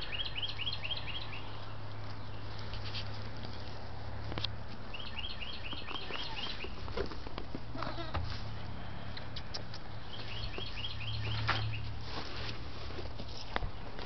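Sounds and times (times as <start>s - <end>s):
bird chirping: 0.0s - 2.5s, 4.9s - 6.8s, 9.4s - 11.9s.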